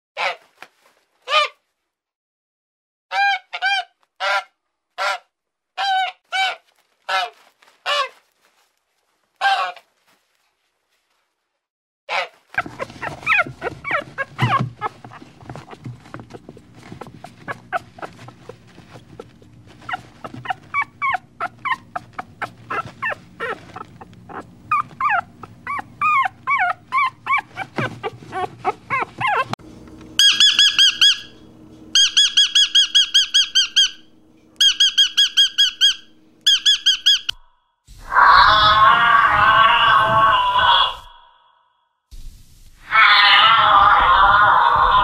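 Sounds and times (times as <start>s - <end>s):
puppy trilling chirps: 12.6s - 29.6s, 30.2s - 31.4s, 32.0s - 37.4s
puppy yipping and whining: 12.6s - 29.6s.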